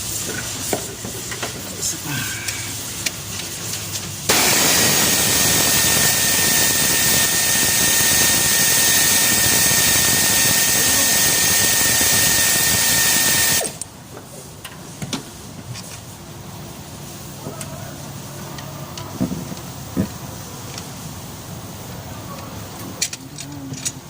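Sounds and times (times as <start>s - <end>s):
power tool whining: 4.3s - 13.8s.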